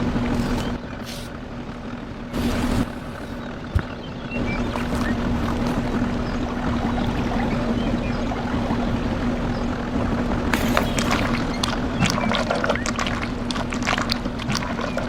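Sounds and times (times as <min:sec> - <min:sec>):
vehicle engine humming: 0:00.0 - 0:15.0
water splashes: 0:02.4 - 0:15.0.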